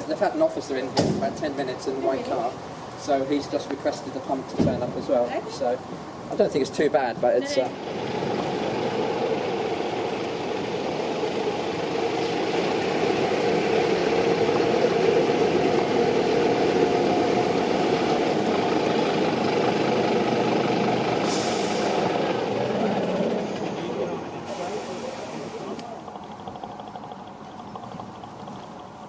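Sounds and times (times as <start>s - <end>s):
heavy truck diesel engine: 0.0s - 29.0s
air brake hiss: 21.2s - 22.1s, 24.5s - 25.8s.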